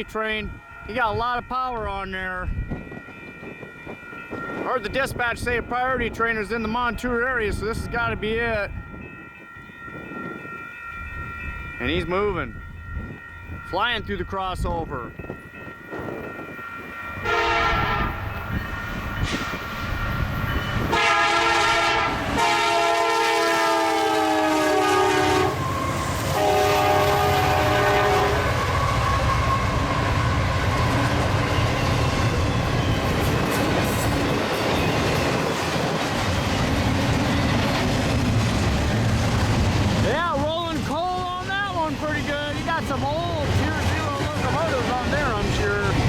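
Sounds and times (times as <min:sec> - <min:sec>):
train rumble and wheel clatter: 0:00.0 - 0:46.0
locomotive air horn blasts: 0:17.2 - 0:18.3, 0:20.9 - 0:31.0.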